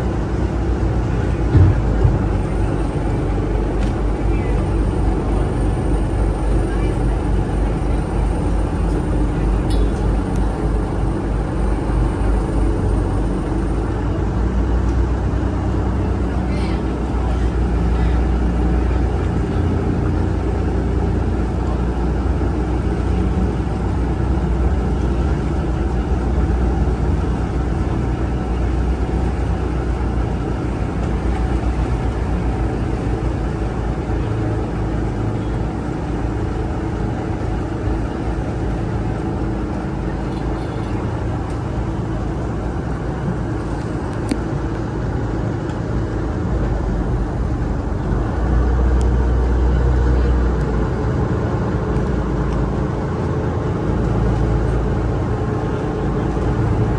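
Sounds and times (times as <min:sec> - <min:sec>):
ferry engine rumble: 0:00.0 - 0:56.9
wind: 0:00.0 - 0:56.9.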